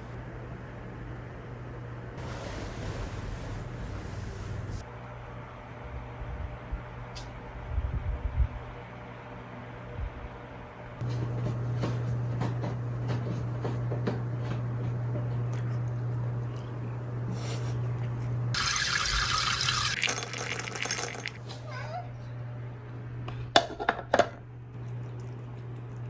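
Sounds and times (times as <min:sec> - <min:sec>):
steady low hum: 0:00.0 - 0:20.0
water filling a container: 0:18.6 - 0:21.4.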